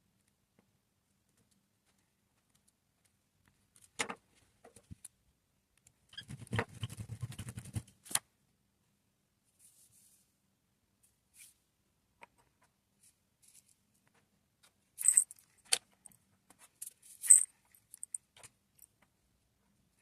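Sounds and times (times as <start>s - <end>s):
resin pieces rattling: 15.0s - 15.4s, 17.2s - 18.2s.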